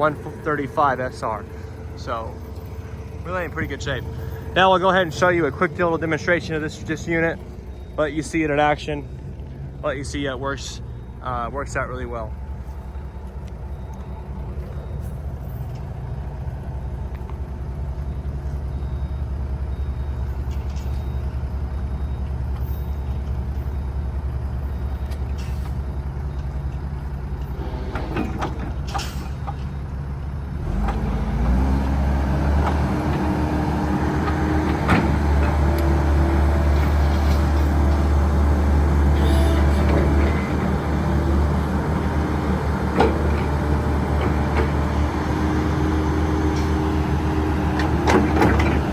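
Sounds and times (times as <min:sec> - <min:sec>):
excavator diesel engine running: 0:00.0 - 0:48.9
metal clanks: 0:27.4 - 0:29.9, 0:32.6 - 0:48.9.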